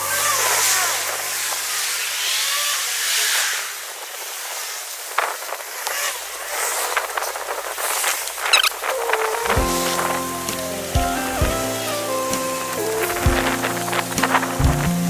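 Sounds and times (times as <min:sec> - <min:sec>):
road traffic rushing: 0:07.1 - 0:15.0.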